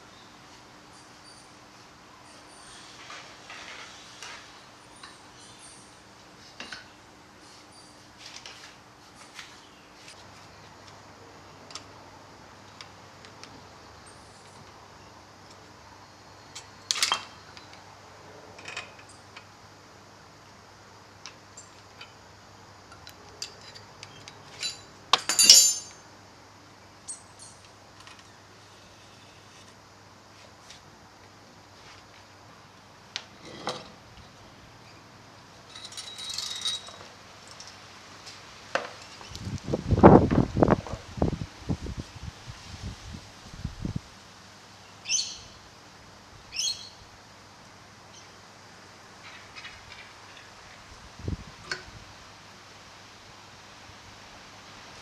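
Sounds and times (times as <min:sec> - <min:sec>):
tools clicking and clinking: 0:22.9 - 0:26.0.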